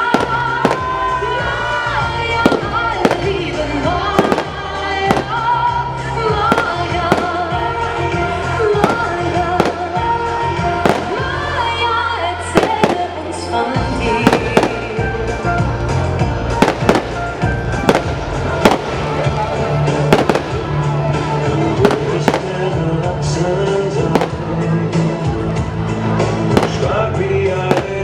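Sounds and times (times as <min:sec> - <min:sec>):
fireworks bangs: 0:00.0 - 0:01.2, 0:02.3 - 0:11.8, 0:12.6 - 0:13.5, 0:14.1 - 0:15.1, 0:16.5 - 0:21.0, 0:21.8 - 0:22.8, 0:24.0 - 0:24.6, 0:26.5 - 0:28.0
loud show music: 0:00.0 - 0:28.0.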